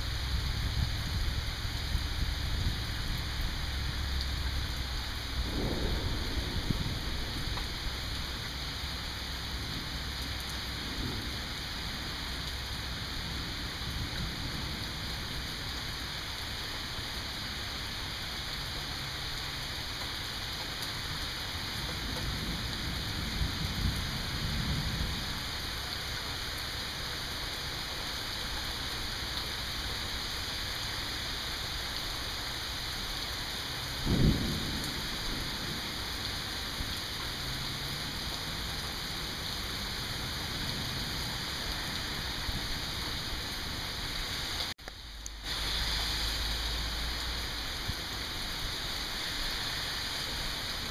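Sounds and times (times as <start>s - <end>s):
steady rain falling: 0.0s - 50.9s
distant thunder rumbling: 0.2s - 15.4s, 21.6s - 25.6s, 33.8s - 44.1s.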